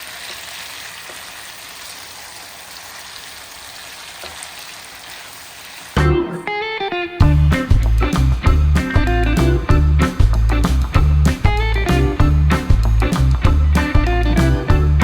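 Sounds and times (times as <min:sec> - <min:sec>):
food frying in hot oil: 0:00.0 - 0:05.9
loud music with plucked guitar: 0:06.0 - 0:15.0.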